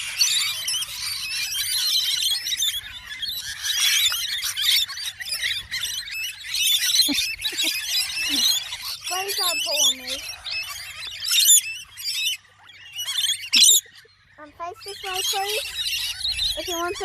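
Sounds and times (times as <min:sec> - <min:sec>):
flock of small birds chirping: 0:00.0 - 0:17.0.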